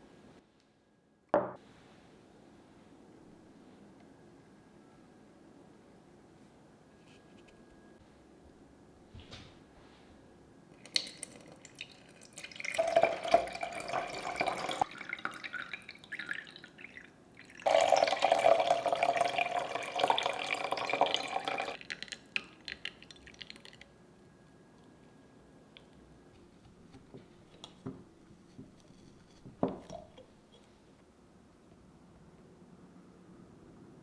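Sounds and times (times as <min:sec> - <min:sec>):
water running from a tap: 0:10.9 - 0:21.8.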